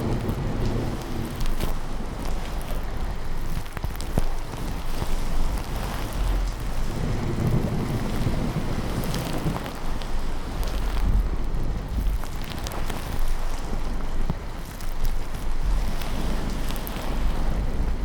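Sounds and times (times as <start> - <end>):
low thunder rumbling: 0.0 - 3.5, 5.9 - 12.4
steady rain: 0.0 - 18.0.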